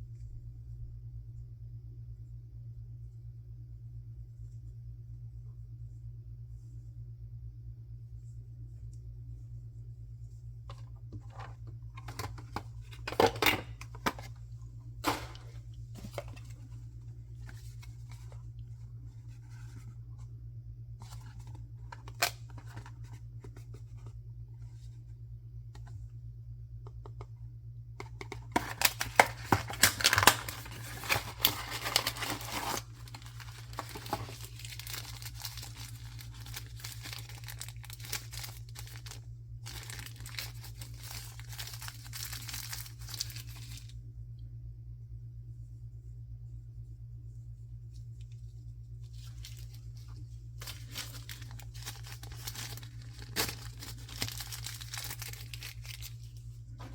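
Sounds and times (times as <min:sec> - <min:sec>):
low hum: 0:00.0 - 0:56.9
packaging crinkling and tearing: 0:21.0 - 0:23.2, 0:28.2 - 0:43.9, 0:49.0 - 0:56.5.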